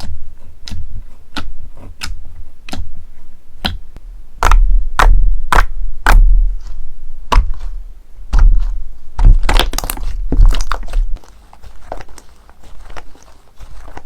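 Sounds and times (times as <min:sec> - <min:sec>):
slime slapping and popping: 0:08.3 - 0:12.2
slime crackling: 0:08.3 - 0:14.0.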